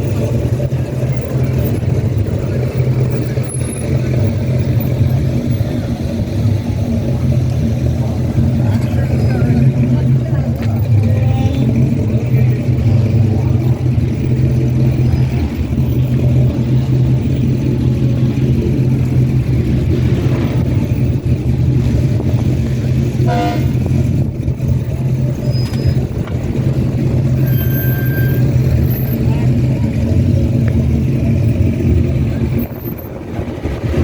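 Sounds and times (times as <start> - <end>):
car engines rumbling: 0.0 - 34.0
short car horn toot: 23.2 - 23.9.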